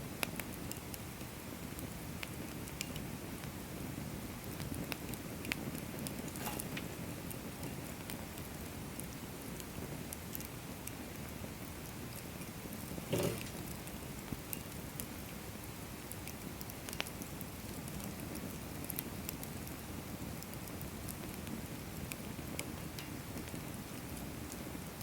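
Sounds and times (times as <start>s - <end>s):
firewood burning and crackling: 0.0s - 25.0s
fire pop: 12.8s - 14.0s
wood snapping in fire: 12.8s - 15.1s.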